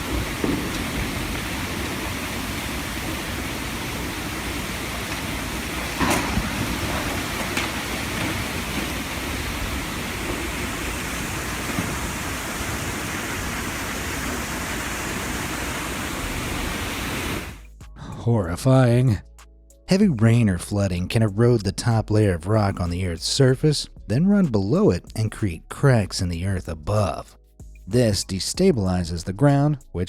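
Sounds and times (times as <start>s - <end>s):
rushing water: 0.0s - 17.6s.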